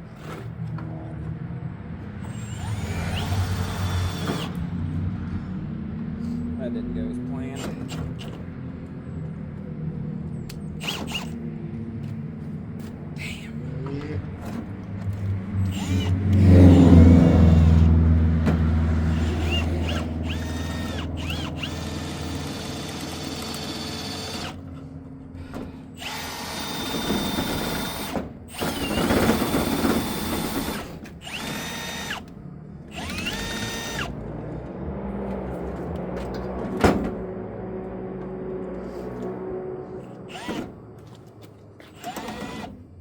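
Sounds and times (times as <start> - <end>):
electric drill whining: 2.2 - 4.7, 10.5 - 11.4, 15.6 - 18.0, 19.0 - 24.6, 26.0 - 32.3, 32.9 - 34.2, 40.0 - 42.9
low hum: 31.2 - 42.2.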